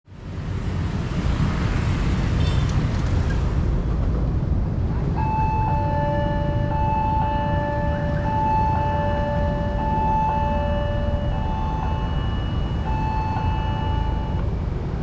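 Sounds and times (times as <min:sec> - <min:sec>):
road traffic: 0:00.0 - 0:15.0
wind rumble: 0:00.1 - 0:15.0
electronic warning siren tones: 0:05.2 - 0:15.0.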